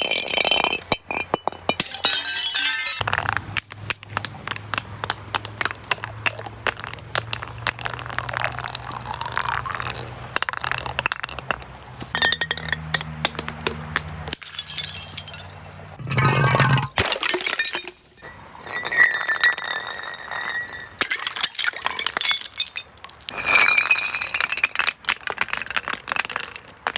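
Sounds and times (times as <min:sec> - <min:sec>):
glass bottles breaking: 0:00.0 - 0:03.0, 0:12.1 - 0:25.6.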